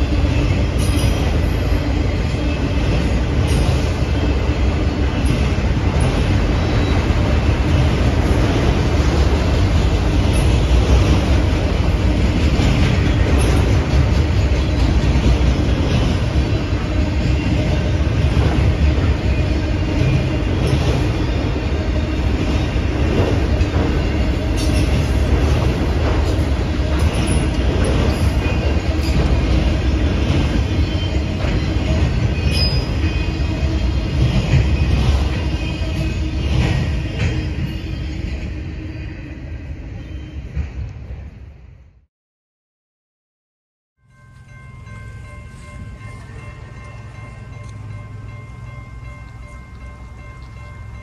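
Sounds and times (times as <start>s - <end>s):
freight train wheels rumbling: 0.0s - 42.0s, 44.1s - 51.0s.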